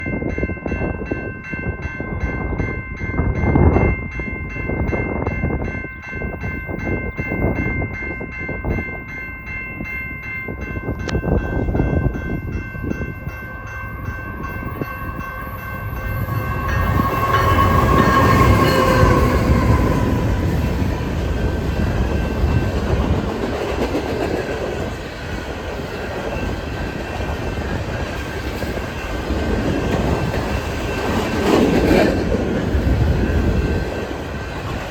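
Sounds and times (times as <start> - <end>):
freight train passing: 0.0 - 34.9
train cars rumbling on rails: 0.0 - 34.9
locomotive high tones: 6.8 - 34.9.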